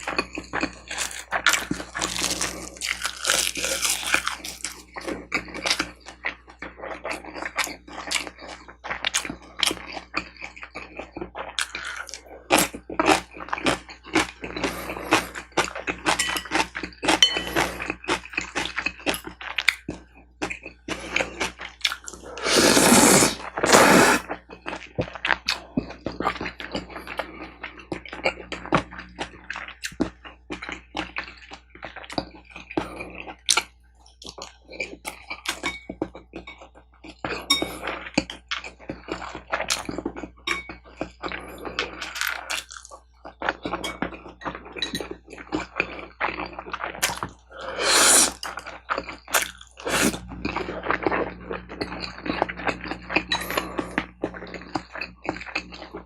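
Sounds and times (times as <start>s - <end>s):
chewing and mouth smacks: 0.0s - 22.4s, 24.4s - 56.0s
loud slurps: 22.2s - 24.3s, 47.6s - 48.5s, 49.8s - 50.2s.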